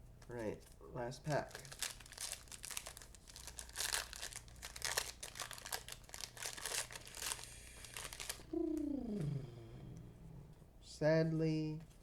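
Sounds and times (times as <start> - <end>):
plastic wrapper tearing and crinkling: 1.3 - 8.4.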